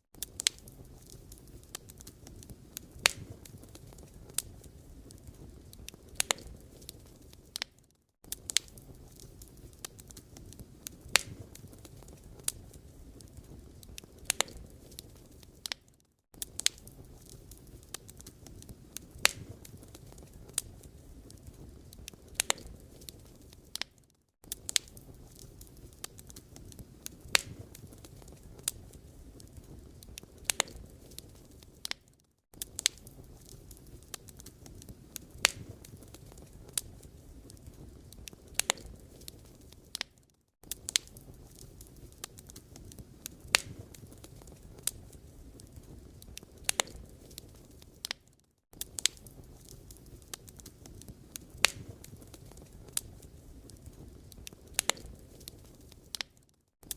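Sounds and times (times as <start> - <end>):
firewood crackling and popping: 0.1 - 56.9
low fire hiss: 0.2 - 7.7, 8.3 - 15.8, 16.4 - 23.9, 24.5 - 32.0, 32.6 - 39.9.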